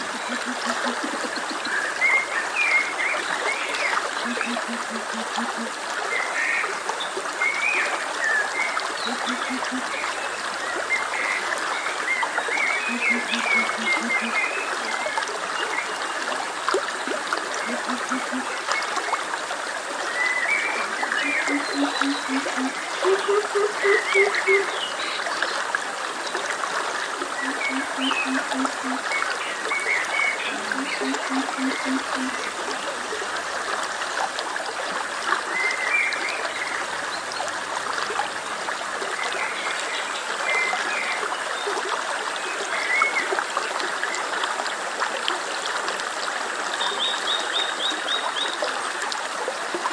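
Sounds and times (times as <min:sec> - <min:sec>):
frogs croaking: 0:00.0 - 0:02.3, 0:03.9 - 0:05.8, 0:09.0 - 0:10.0, 0:12.6 - 0:14.6, 0:17.1 - 0:18.6, 0:20.7 - 0:24.8, 0:27.1 - 0:33.4
stream running: 0:00.0 - 0:49.9.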